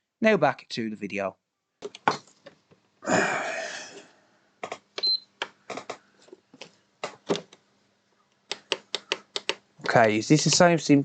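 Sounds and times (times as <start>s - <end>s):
sharp clicks and taps: 4.6s - 6.0s, 8.3s - 10.7s.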